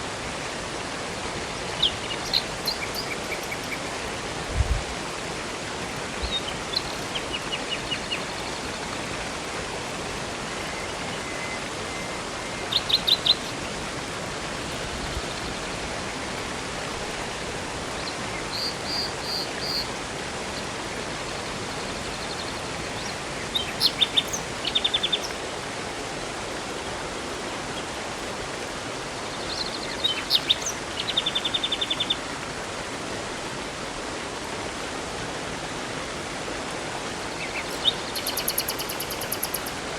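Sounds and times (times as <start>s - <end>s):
river and waterfall rushing: 0.0s - 39.9s
songbirds chirping and trilling: 1.6s - 4.1s, 6.1s - 8.9s, 10.6s - 13.8s, 18.0s - 19.9s, 21.9s - 25.4s, 29.3s - 32.2s, 37.4s - 39.8s.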